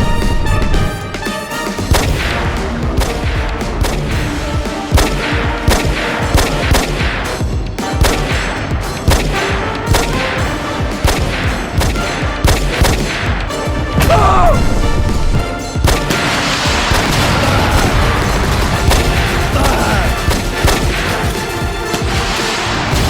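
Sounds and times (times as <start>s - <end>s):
explosions: 0.0s - 1.1s, 1.8s - 23.0s
background music: 0.0s - 23.0s
rapid gunfire: 0.0s - 23.0s.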